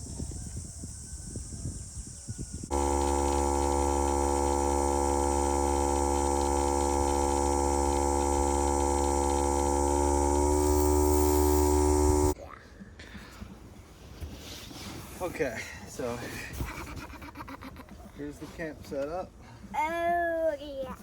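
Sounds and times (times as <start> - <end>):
air compressor running: 2.6 - 12.4.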